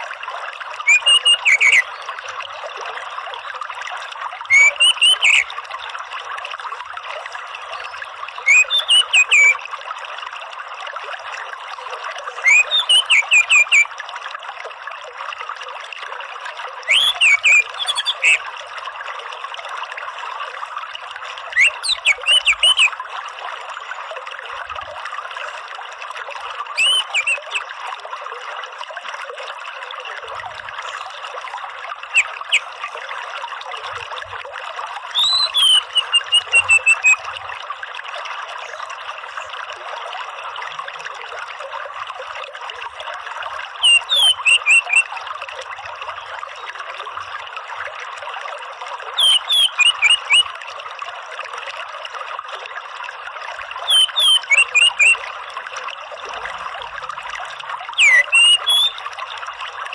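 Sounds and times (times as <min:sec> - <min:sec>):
trickling water: 0:00.0 - 0:59.9
thrush calling: 0:00.8 - 0:01.9, 0:04.5 - 0:05.5, 0:07.8 - 0:09.6, 0:12.3 - 0:13.9, 0:16.9 - 0:18.4, 0:21.5 - 0:23.0, 0:26.7 - 0:27.7, 0:32.1 - 0:33.2, 0:35.1 - 0:37.4, 0:43.8 - 0:45.1, 0:49.2 - 0:50.5, 0:53.9 - 0:55.2, 0:58.0 - 0:59.0.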